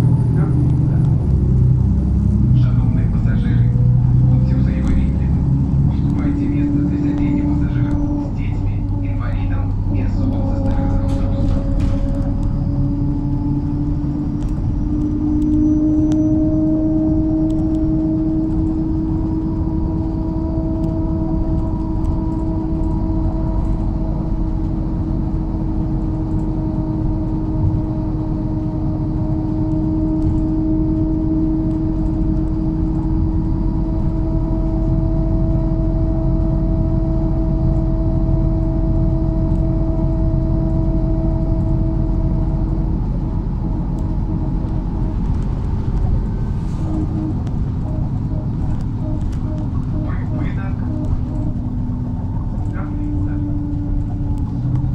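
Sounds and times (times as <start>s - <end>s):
bus engine rumble: 0.0s - 54.9s
steady whine: 0.0s - 54.9s.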